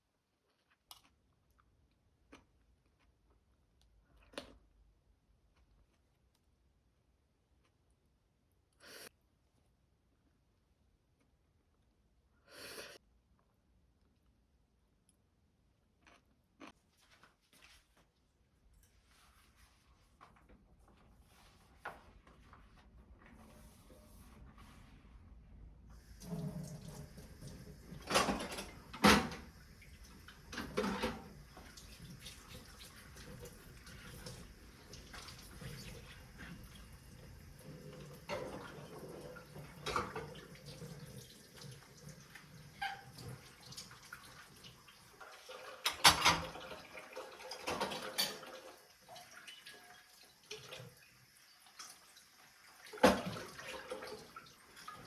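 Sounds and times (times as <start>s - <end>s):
water splashing and trickling: 25.9s - 55.0s.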